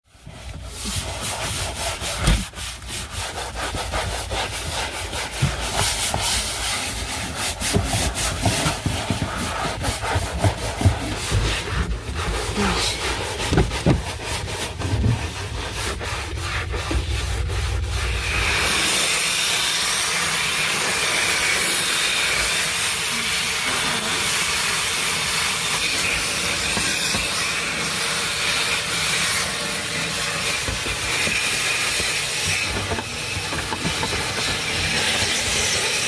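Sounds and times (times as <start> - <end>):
scrubbing on a hard surface: 0.1 - 36.0
steady low rumble: 11.8 - 20.0.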